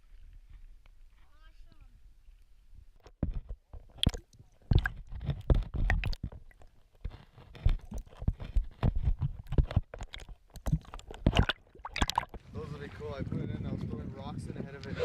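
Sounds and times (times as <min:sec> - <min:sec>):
stones knocking underwater: 0:03.0 - 0:12.4.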